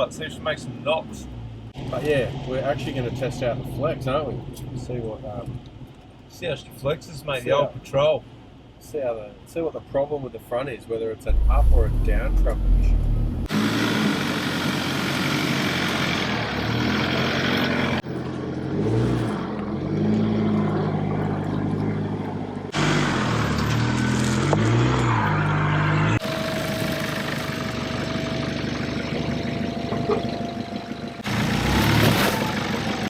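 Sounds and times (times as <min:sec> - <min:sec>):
diesel engine running: 0:11.3 - 0:16.6, 0:26.2 - 0:33.0.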